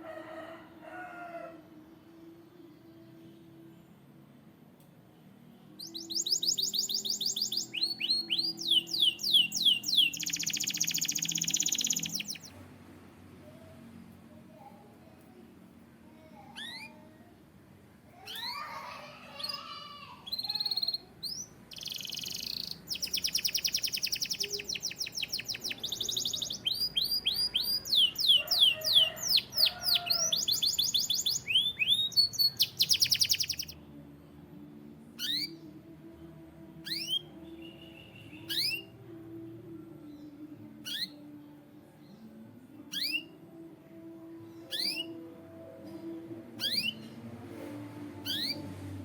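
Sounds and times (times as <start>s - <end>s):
canary chirps: 5.7s - 12.6s, 16.2s - 17.2s, 18.2s - 33.8s, 35.1s - 35.7s, 36.8s - 39.4s, 40.1s - 41.4s, 42.1s - 45.3s, 46.6s - 47.2s, 48.2s - 48.8s
canary singing trills: 5.8s - 12.6s, 16.2s - 17.2s, 18.3s - 33.8s, 35.1s - 35.7s, 36.8s - 39.4s, 40.2s - 41.4s, 42.2s - 45.4s, 46.6s - 47.2s, 48.2s - 48.7s.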